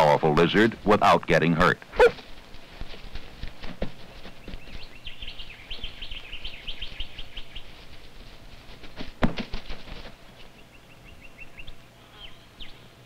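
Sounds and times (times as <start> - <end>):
small birds chirping: 1.8 - 9.0, 9.9 - 13.0.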